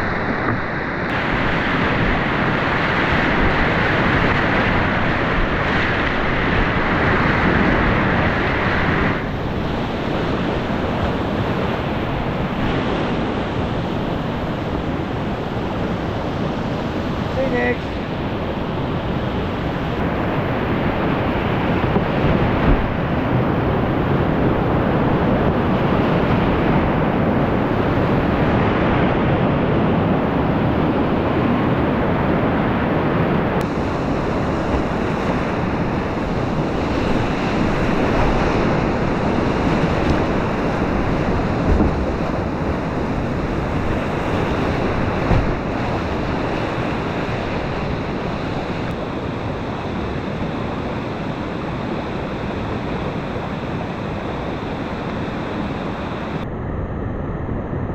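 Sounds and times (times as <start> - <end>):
whitewater rapids rushing: 0.0 - 29.1, 33.6 - 56.4
brief thumps on kayak: 41.5 - 42.2, 45.2 - 45.6.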